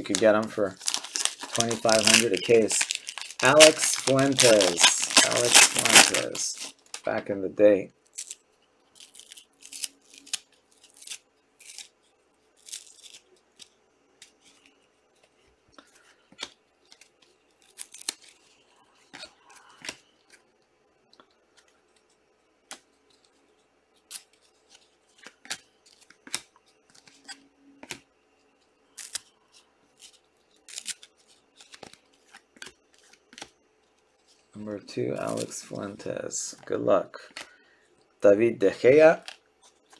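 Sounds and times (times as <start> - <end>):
trading card wrapper crinkling: 0.0 - 7.2, 8.1 - 11.9, 12.6 - 13.7.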